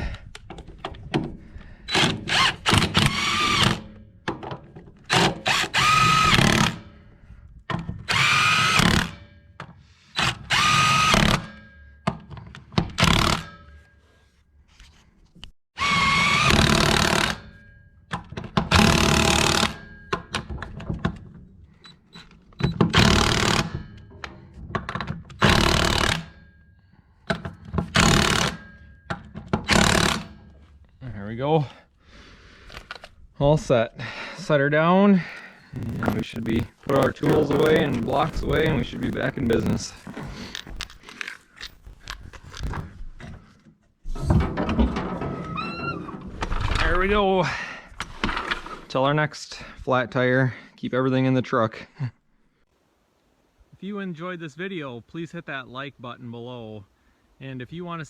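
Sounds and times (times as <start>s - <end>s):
impact wrench whining: 5.1s - 6.8s, 22.2s - 23.9s, 25.4s - 26.4s, 27.9s - 28.6s, 29.7s - 30.4s, 35.4s - 42.9s.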